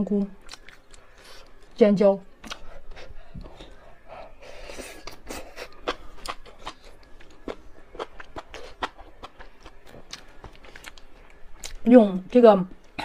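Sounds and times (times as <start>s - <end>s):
eating clicks and smacks: 0.4s - 1.0s, 2.4s - 2.8s.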